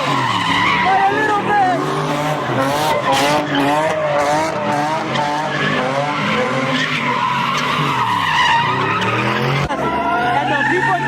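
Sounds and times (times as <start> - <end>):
car engine revving high: 0.0 - 11.0
tyres screeching on pavement: 0.0 - 11.0.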